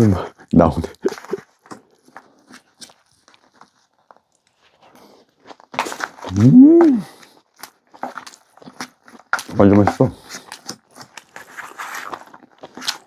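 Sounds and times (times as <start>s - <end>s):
person eating with mouth clicks: 6.2s - 7.3s
person humming mmm: 6.3s - 7.2s.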